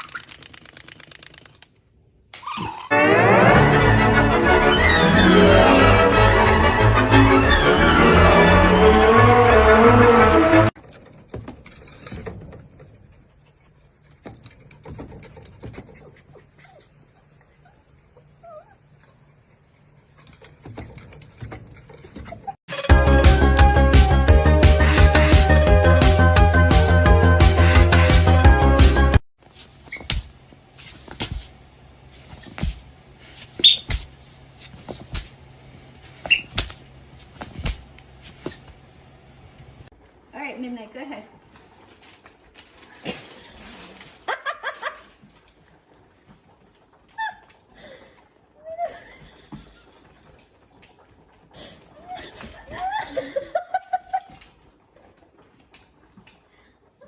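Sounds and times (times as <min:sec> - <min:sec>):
short high squeak: 0:02.4 - 0:03.0, 0:29.8 - 0:30.3, 0:33.6 - 0:34.0, 0:36.2 - 0:36.7
rustling: 0:29.4 - 0:38.9.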